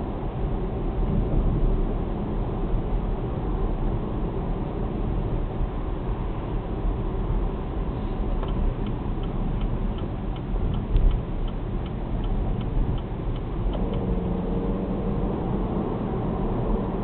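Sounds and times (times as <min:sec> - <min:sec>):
car engine drone: 0:00.0 - 0:17.0
road noise: 0:00.0 - 0:17.0
turn signal ticking: 0:08.2 - 0:14.7.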